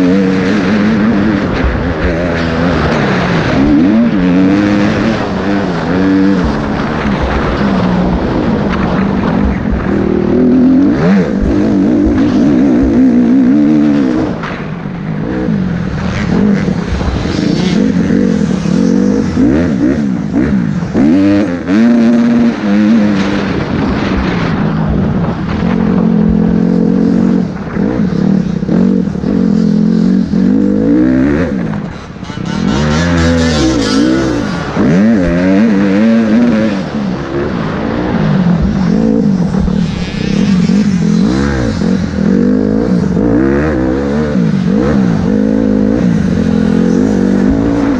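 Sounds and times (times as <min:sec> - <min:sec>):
motocross bike engines revving: 0:00.0 - 0:47.9.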